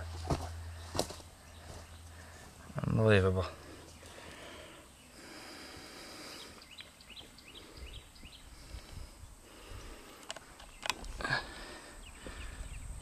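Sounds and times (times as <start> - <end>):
low background rumbles: 0.0 - 10.1
bird chirping: 0.5 - 13.0.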